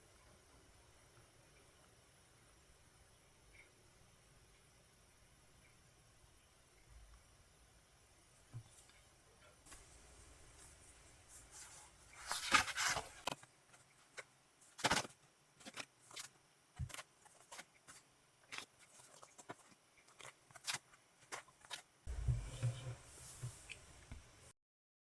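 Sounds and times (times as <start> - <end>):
packaging rustling: 11.5 - 14.0.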